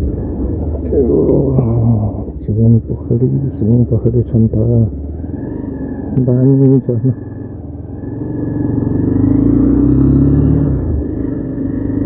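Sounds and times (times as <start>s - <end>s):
motorcycle engine revving: 3.9s - 12.0s.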